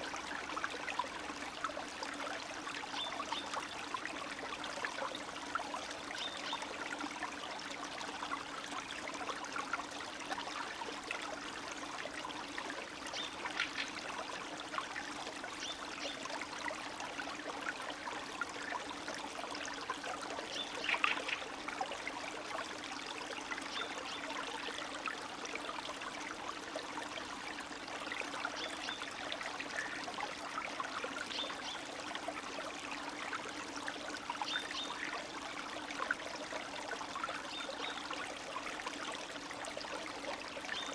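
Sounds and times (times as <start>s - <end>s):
stream trickling and splashing: 0.0s - 40.9s.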